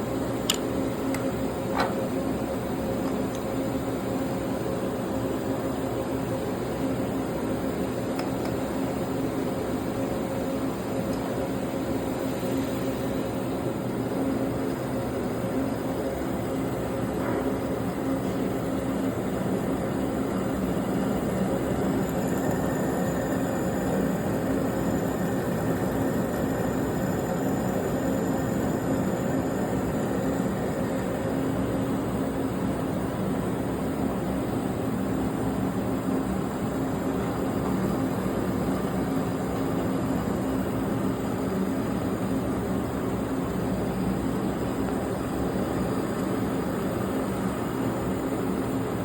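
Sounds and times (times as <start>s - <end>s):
machine humming: 6.5s - 33.6s.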